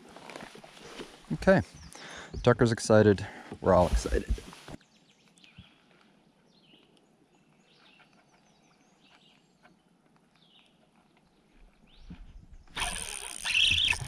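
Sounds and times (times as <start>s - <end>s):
faint songbird chirps: 1.3s - 3.0s, 4.8s - 14.0s.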